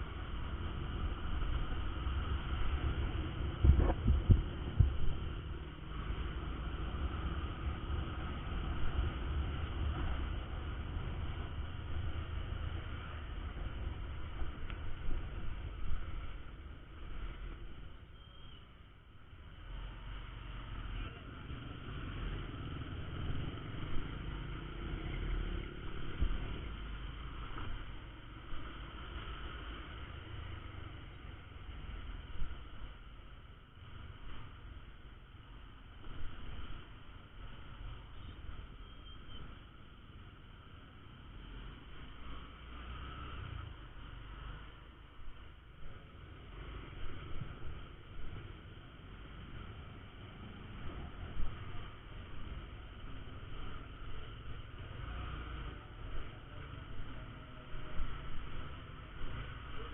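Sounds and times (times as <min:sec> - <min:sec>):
motorcycle engine rumble: 0:00.0 - 0:59.9
road and wind noise: 0:00.0 - 0:59.9
wind on microphone: 0:02.9 - 0:05.3.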